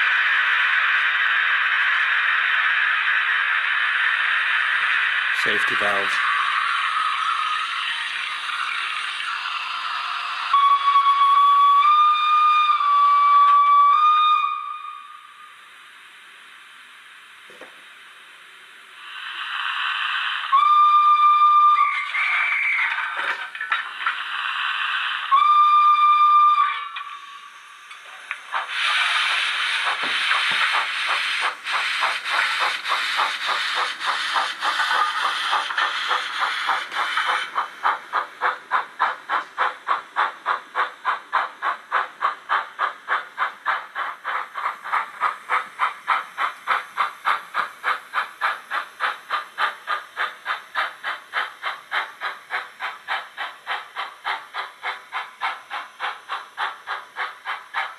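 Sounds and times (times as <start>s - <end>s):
steam engine chuffing: 0.0s - 13.2s, 28.0s - 57.9s
steam hiss: 0.0s - 57.9s
steam whistle toot: 9.3s - 15.6s, 20.4s - 23.0s, 25.2s - 27.8s.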